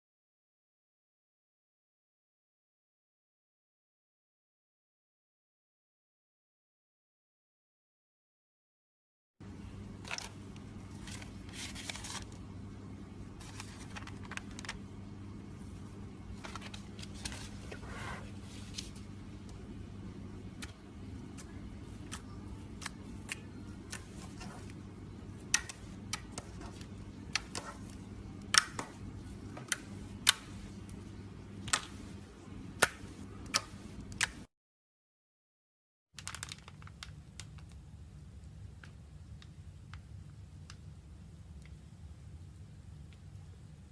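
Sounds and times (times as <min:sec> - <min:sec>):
low electrical hum: 0:09.4 - 0:34.5, 0:36.2 - 0:43.9.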